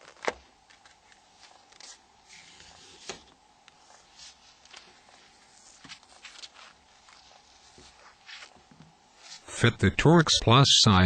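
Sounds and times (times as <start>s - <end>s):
faint scraping and rustling: 1.0s - 9.5s.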